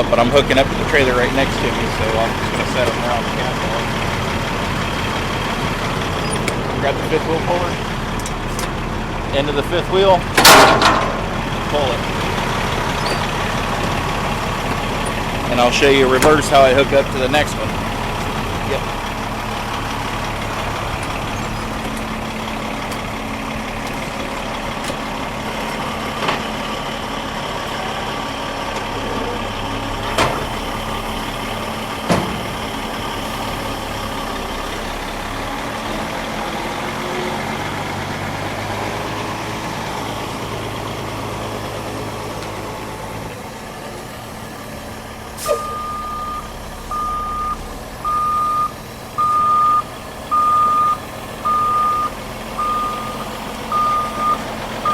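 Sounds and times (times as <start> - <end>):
diesel truck engine running: 0.0 - 54.9
reversing alarm beeping: 45.4 - 54.9.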